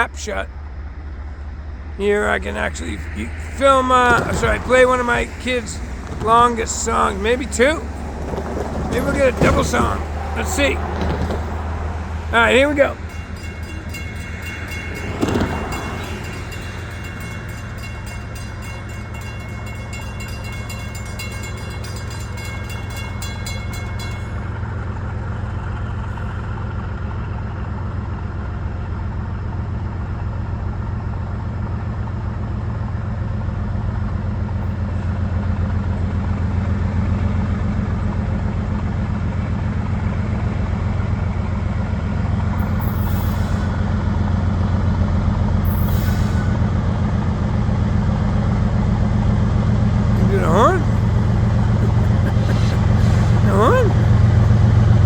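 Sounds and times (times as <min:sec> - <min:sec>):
diesel locomotive engines running: 0:00.0 - 0:55.0
thin high tone: 0:12.4 - 0:24.7.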